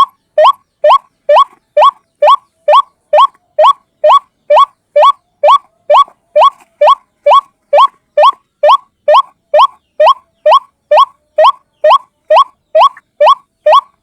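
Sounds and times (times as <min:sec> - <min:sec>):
bird calling upward-sliding notes: 0:00.0 - 0:14.0.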